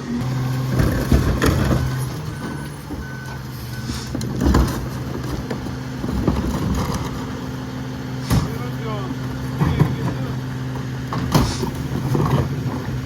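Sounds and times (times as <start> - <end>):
garbage truck diesel engine running: 0.0 - 13.0
reverse alarm beeps: 1.6 - 4.1.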